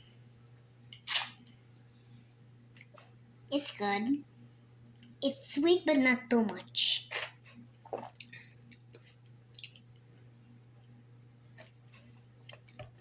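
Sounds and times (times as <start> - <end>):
low steady hum: 0.0 - 13.0
wet clicks and lip smacks: 7.9 - 10.1.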